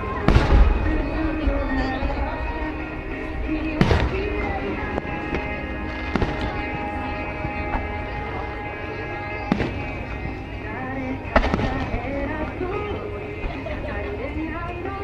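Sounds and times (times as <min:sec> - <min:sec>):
fireworks exploding: 0:00.0 - 0:08.2, 0:09.3 - 0:10.4, 0:11.3 - 0:12.6
background music: 0:00.0 - 0:15.0.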